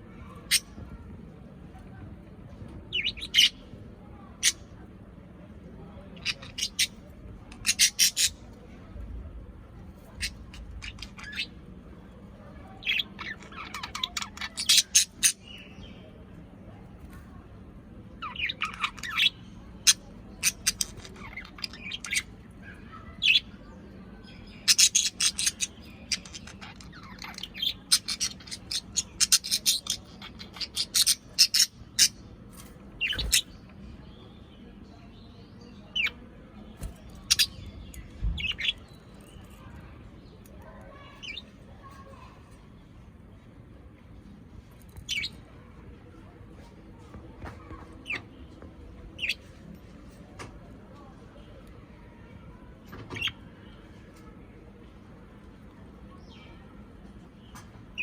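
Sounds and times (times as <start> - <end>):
parrots chirping and squawking: 6.2 - 8.4, 10.1 - 11.6, 12.8 - 15.4, 18.2 - 23.5, 24.5 - 33.6, 36.9 - 39.6.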